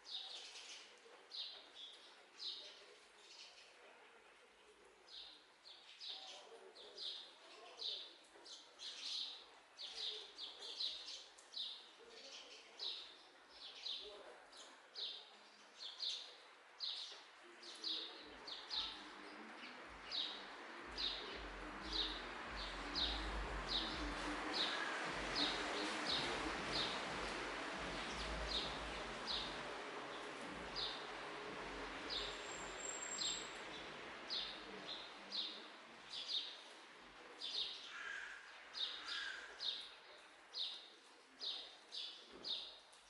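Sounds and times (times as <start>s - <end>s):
rushing hiss with low rumble: 21.4s - 32.3s.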